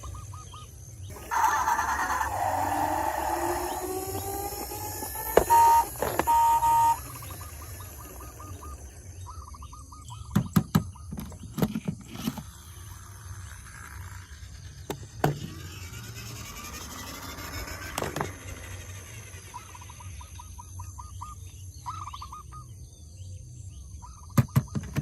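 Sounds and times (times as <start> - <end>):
warbling electronic tone: 1.1 - 9.0
loud electronic beeps: 3.7 - 8.8.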